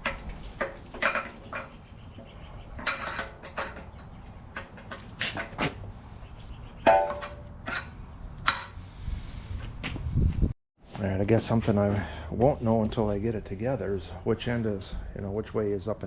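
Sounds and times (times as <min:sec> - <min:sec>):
metal parts clinking and knocking: 0:00.0 - 0:01.9, 0:02.6 - 0:05.6, 0:06.8 - 0:08.8.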